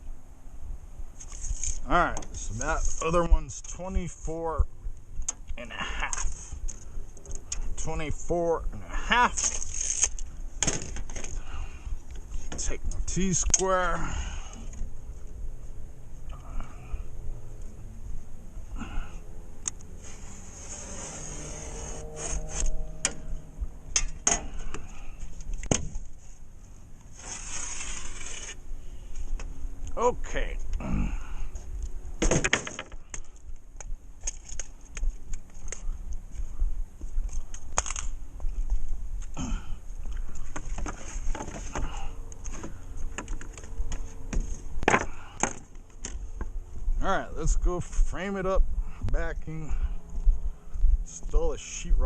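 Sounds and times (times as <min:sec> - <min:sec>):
steady low hum: 0:00.0 - 0:52.0
metal scraping along drywall: 0:20.0 - 0:23.2, 0:27.1 - 0:28.6.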